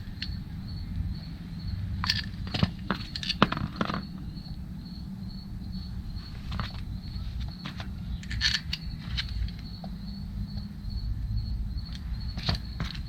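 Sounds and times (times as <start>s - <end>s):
steady low hum: 0.0s - 13.0s
hands clicking and tapping parts: 6.5s - 10.7s, 11.9s - 13.0s.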